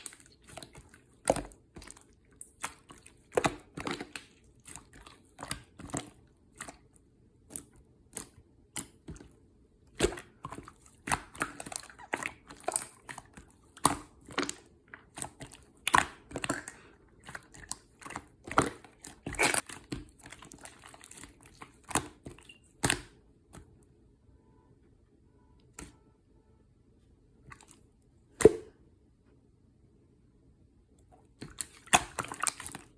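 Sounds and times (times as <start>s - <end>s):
slime squished by hand: 0.0s - 23.7s, 31.3s - 32.9s.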